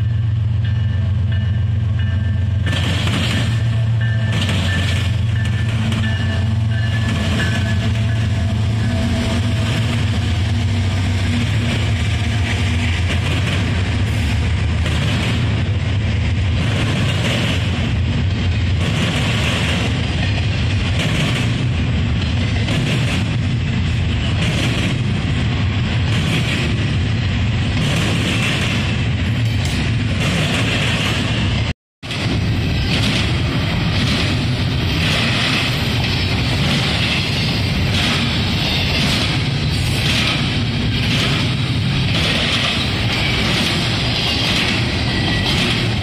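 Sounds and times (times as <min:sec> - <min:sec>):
diesel locomotive engine drone: 0:00.0 - 0:46.0
steel wheels rumbling on rail: 0:00.0 - 0:46.0
wheels clicking over rail joints: 0:32.1 - 0:46.0.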